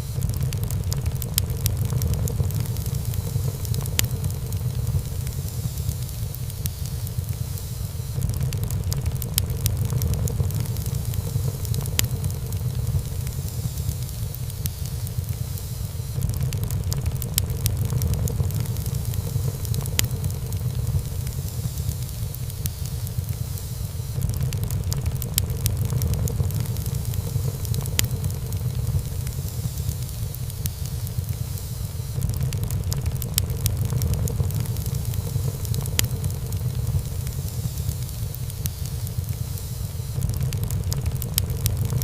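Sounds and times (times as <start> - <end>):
low rumble of flame: 0.0 - 42.0
wood fire crackling and popping: 0.0 - 42.0.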